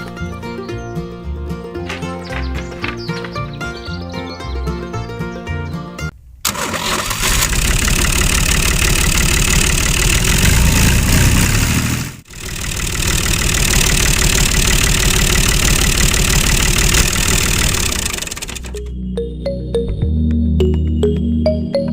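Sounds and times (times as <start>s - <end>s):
small engine running: 6.5s - 18.9s.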